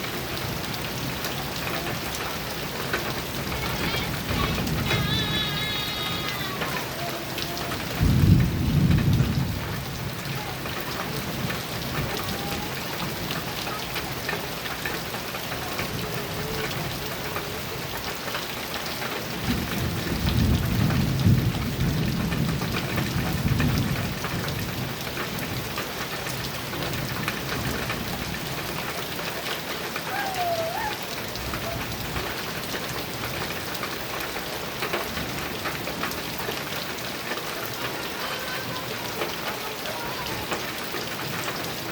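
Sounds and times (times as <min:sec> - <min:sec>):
heavy rain on a metal roof: 0:00.0 - 0:41.9
thunder rumbling: 0:00.2 - 0:13.5, 0:19.3 - 0:25.7, 0:29.6 - 0:37.2.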